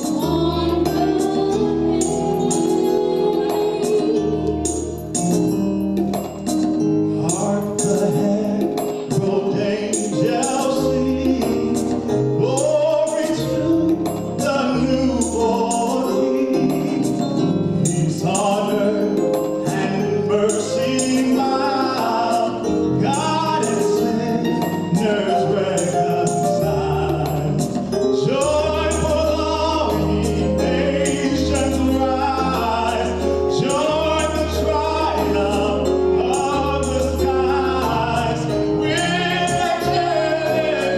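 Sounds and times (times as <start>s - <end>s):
gospel choir singing: 0.0s - 4.8s, 7.4s - 40.9s
deep bass line: 10.2s - 40.9s.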